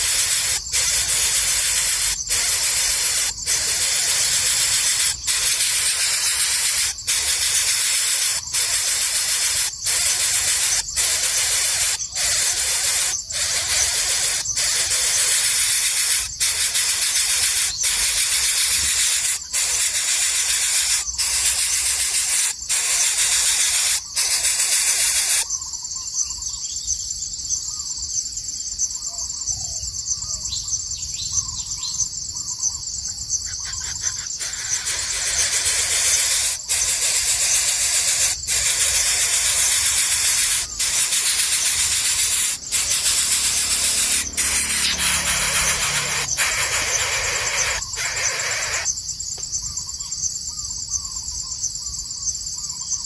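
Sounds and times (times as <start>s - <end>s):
loud steady hiss: 0.0s - 25.5s, 33.6s - 48.9s
bird chirps: 0.0s - 27.0s, 29.2s - 53.0s
high insect drone: 0.0s - 30.2s, 32.0s - 53.0s.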